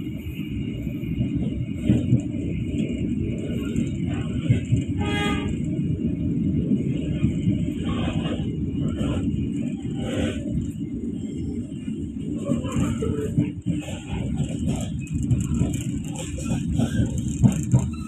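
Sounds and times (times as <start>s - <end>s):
train wheels rumbling on rails: 0.0s - 18.0s
train horn blast: 4.9s - 5.7s.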